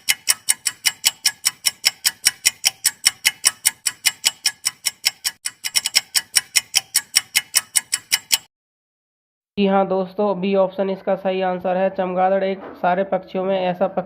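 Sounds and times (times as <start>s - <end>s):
timer clock ticking: 0.0s - 8.5s.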